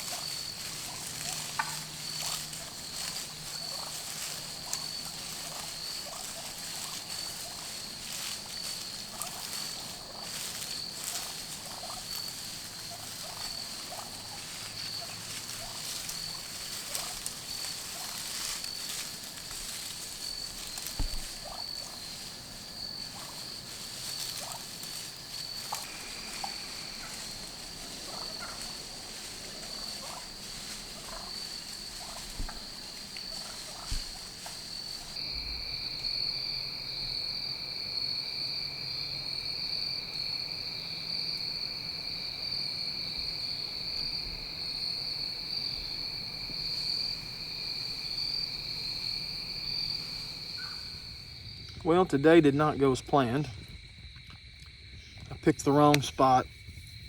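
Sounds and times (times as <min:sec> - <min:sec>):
soft thumps: 0:20.5 - 0:22.0.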